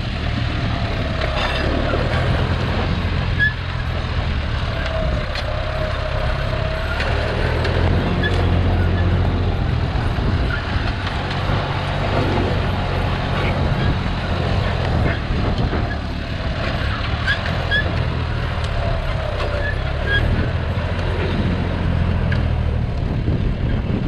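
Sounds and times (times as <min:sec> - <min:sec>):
tractor diesel engine droning: 0:00.0 - 0:24.0.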